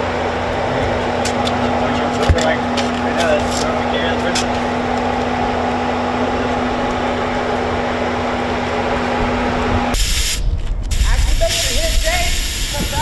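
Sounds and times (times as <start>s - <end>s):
deep rumble: 0.0s - 13.0s
loud hiss: 9.9s - 13.0s.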